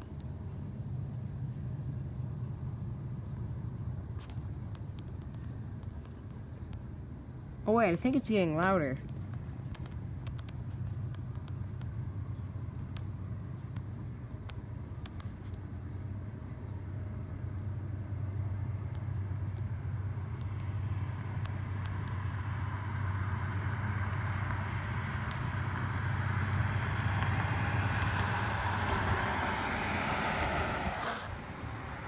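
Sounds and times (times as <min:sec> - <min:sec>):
distant train rumble: 0:00.0 - 0:32.0
train rushing noise: 0:25.2 - 0:32.0.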